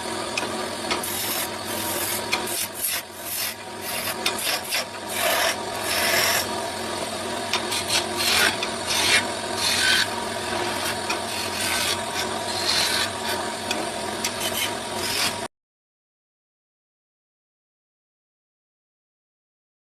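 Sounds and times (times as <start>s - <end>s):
tool rasping on wood: 0.4s - 15.5s.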